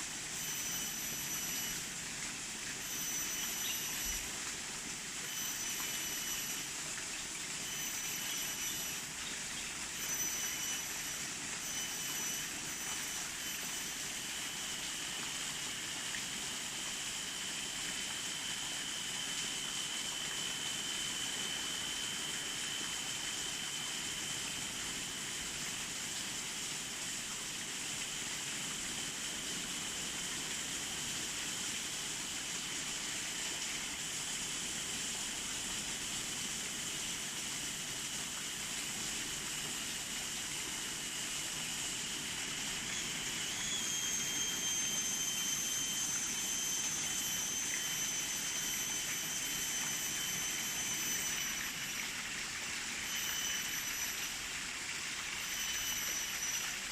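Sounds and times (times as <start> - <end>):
thin high tone: 0.2 - 2.0, 2.6 - 24.8, 41.6 - 56.9.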